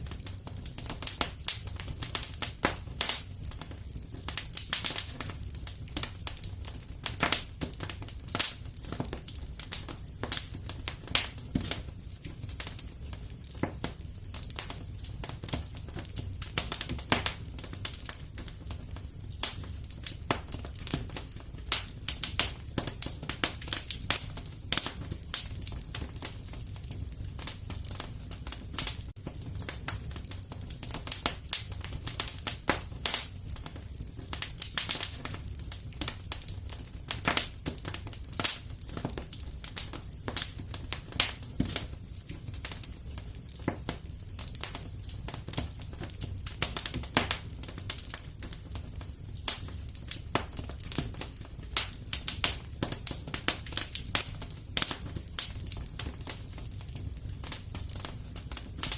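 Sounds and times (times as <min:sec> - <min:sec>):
wood fire crackling and popping: 0:00.0 - 0:58.9.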